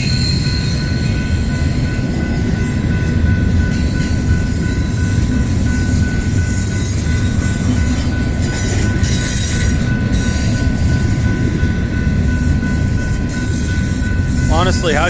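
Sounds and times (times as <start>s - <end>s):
freight train wheels rumbling on rail: 0.0s - 15.0s
train wheel squeal: 0.0s - 15.0s.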